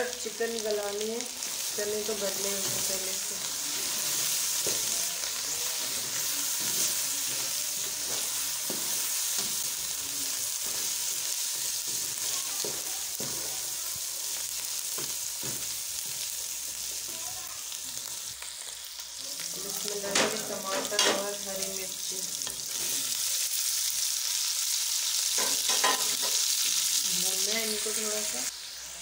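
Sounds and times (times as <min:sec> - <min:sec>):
food sizzling in hot oil: 0:00.0 - 0:29.0
spatula scraping and knocking pan: 0:02.2 - 0:05.1, 0:05.8 - 0:10.0, 0:10.6 - 0:14.0, 0:14.9 - 0:16.3, 0:25.4 - 0:26.4.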